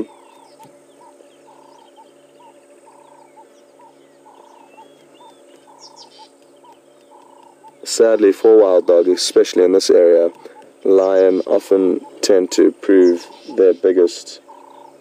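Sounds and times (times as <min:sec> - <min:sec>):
birds chirping and twittering: 0:00.0 - 0:15.0
faint steady hum: 0:00.0 - 0:15.0.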